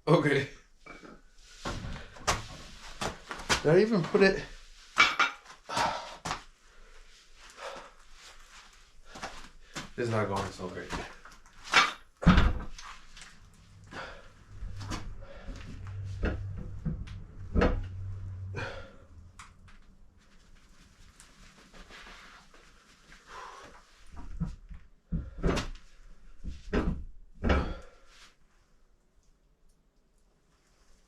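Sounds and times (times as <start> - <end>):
low steady hum: 12.3 - 21.7.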